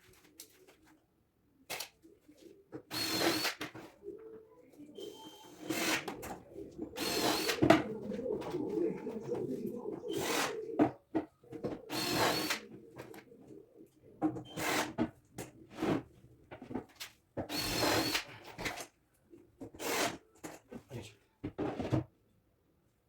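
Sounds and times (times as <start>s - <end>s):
drill driving screws: 2.9s - 3.8s, 5.5s - 6.2s, 7.0s - 7.8s, 10.2s - 10.5s, 11.9s - 12.6s, 14.5s - 15.0s, 17.4s - 18.3s, 19.8s - 20.2s.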